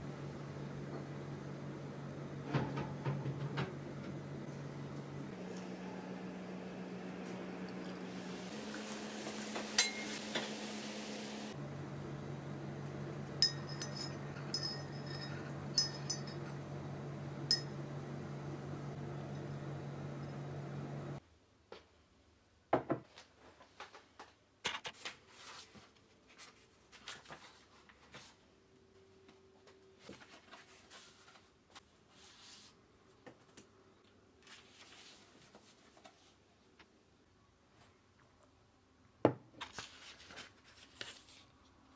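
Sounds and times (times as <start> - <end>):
teaspoon clinking in mug: 13.4 - 16.6, 17.5 - 17.8
book pages rustling: 24.7 - 28.4, 30.0 - 32.8, 34.4 - 36.4, 39.6 - 41.6.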